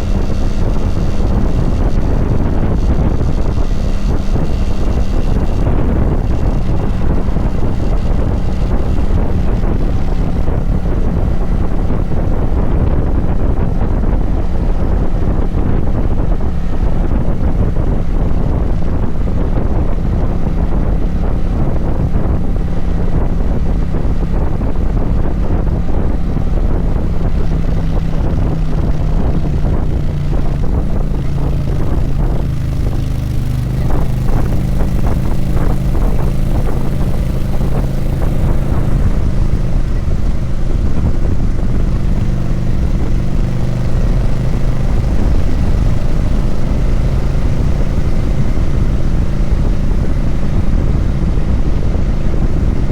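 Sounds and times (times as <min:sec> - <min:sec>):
motorcycle engine running: 0:00.0 - 0:52.9
wind rumbling on microphone: 0:00.0 - 0:52.9.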